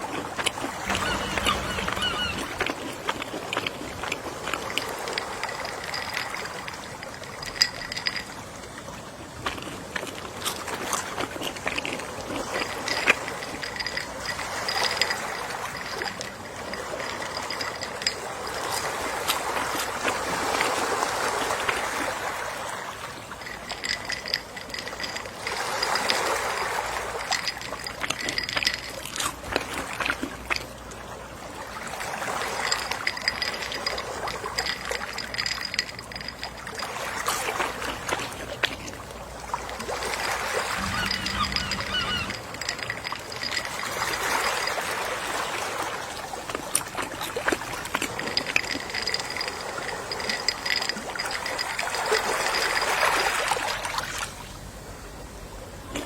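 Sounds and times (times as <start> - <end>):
ocean waves washing ashore: 0.0 - 56.0
high-pitched pulsing chirp: 0.9 - 2.6, 40.8 - 42.6.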